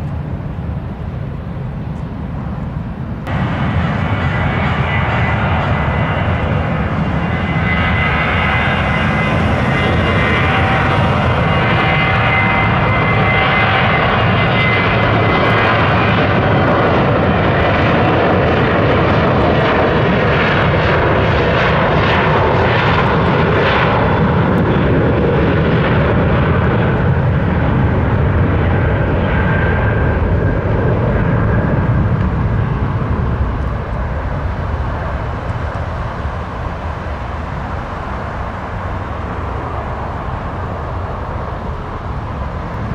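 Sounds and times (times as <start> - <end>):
low rumble: 0.0 - 20.0
aircraft engines whining: 0.0 - 42.9.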